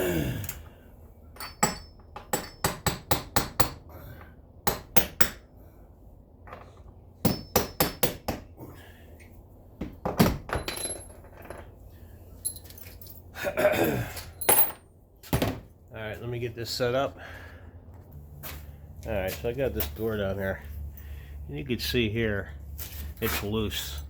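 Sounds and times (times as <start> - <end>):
hammer tapping steel punch: 1.4 - 3.9, 4.6 - 5.4, 7.2 - 8.5.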